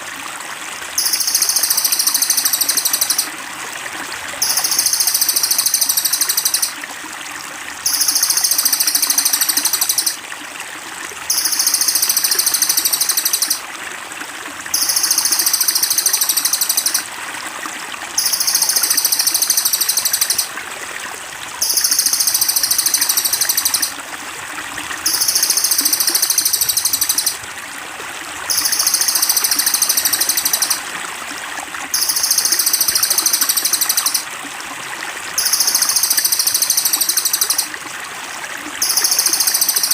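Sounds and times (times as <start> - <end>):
running water trickling: 0.0 - 39.9
songbird trilling: 1.0 - 3.3, 4.4 - 6.8, 7.9 - 10.2, 11.3 - 13.6, 14.8 - 17.0, 18.2 - 20.5, 21.6 - 24.0, 25.1 - 27.4, 28.5 - 30.8, 32.0 - 34.2, 35.4 - 37.7.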